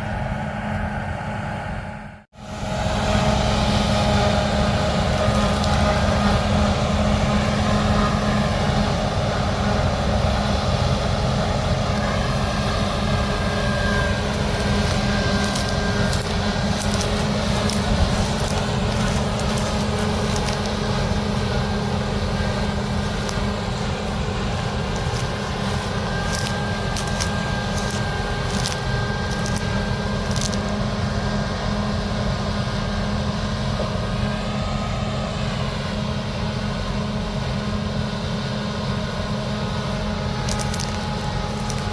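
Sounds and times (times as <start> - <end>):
harvester engine hum: 0.0 - 41.9
sharp crackling ticks: 14.3 - 30.7, 40.4 - 41.9.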